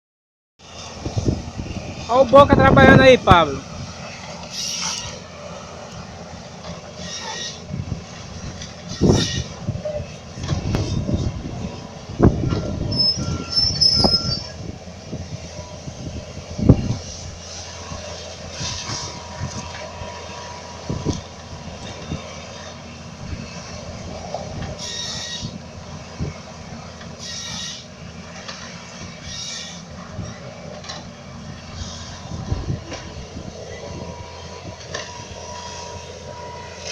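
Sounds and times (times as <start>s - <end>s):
excavator engine under load: 0.6s - 36.9s
high metallic squeals: 4.4s - 5.6s, 7.0s - 7.8s, 8.4s - 10.2s, 12.4s - 14.6s, 24.8s - 25.6s, 27.2s - 28.0s, 29.2s - 30.5s.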